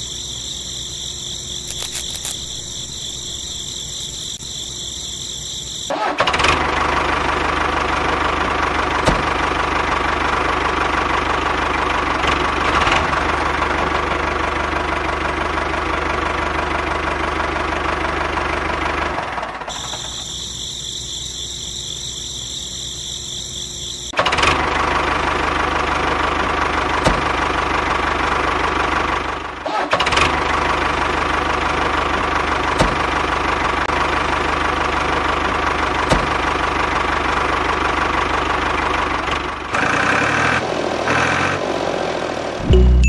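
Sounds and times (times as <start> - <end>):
tractor engine idling: 0.0 - 29.6, 30.2 - 39.8
sharp clicks: 1.6 - 4.4.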